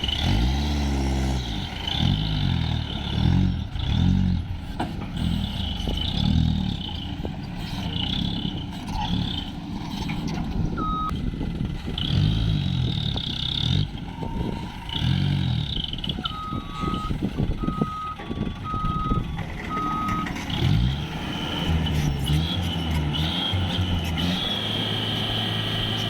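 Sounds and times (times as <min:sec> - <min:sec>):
truck engine revving: 0:00.0 - 0:26.0
reversing alarm beeping: 0:10.7 - 0:11.1, 0:16.1 - 0:20.6.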